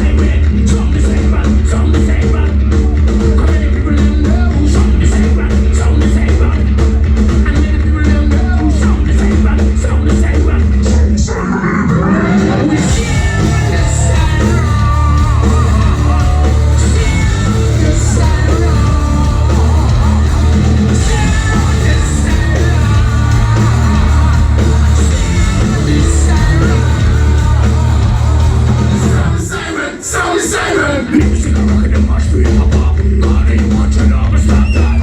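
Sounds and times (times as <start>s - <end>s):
live metal band playing: 0.0s - 35.0s
person singing: 7.4s - 35.0s.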